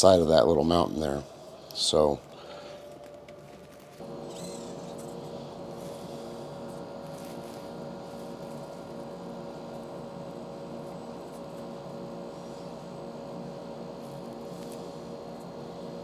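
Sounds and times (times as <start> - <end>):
electric motor whine: 0.8 - 16.0.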